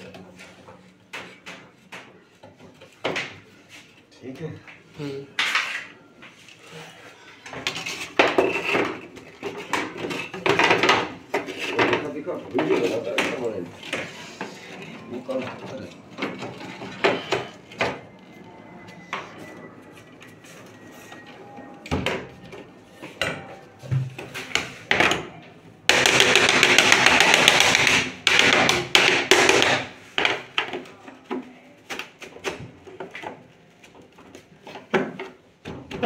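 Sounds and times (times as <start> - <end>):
tools knocking on panels: 25.9 - 30.8.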